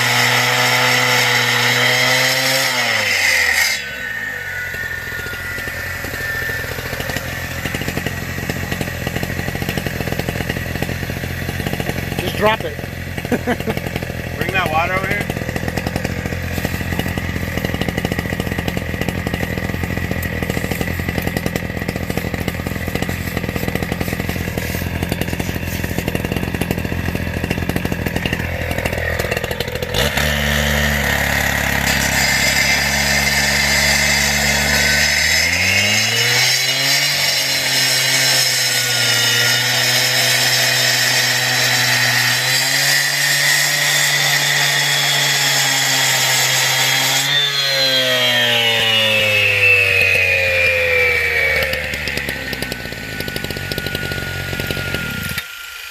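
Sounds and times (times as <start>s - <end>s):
cut-off saw cutting rock: 0.0s - 55.9s.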